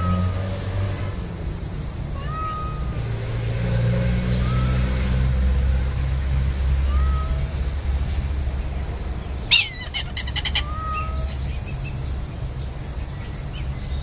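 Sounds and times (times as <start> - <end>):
cat meowing: 2.2 - 3.0, 6.8 - 7.6, 9.5 - 11.5.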